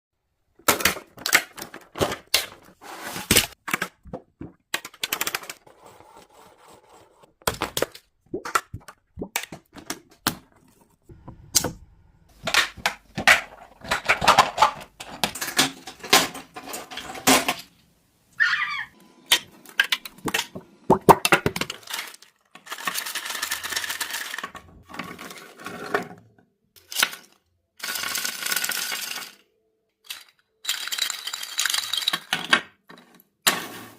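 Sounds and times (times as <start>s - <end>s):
plastic pieces clicking and clattering: 0.6s - 5.8s, 12.3s - 17.8s, 19.3s - 26.2s, 26.8s - 33.9s
plastic scraping: 9.5s - 17.7s.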